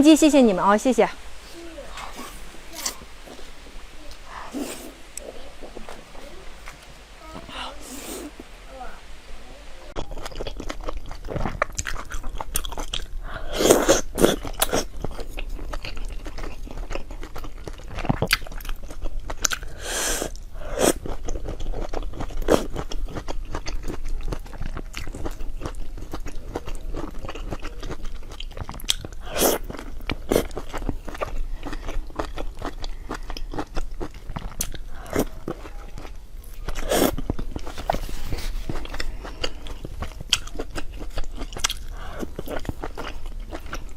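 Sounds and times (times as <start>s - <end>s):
chewing crunchy food: 10.0s - 43.9s.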